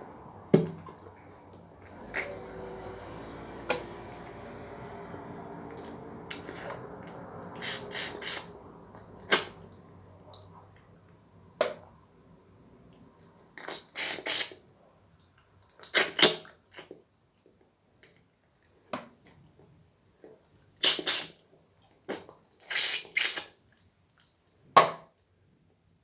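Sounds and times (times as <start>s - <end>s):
wet slurps and smacks eating: 5.7s - 11.2s.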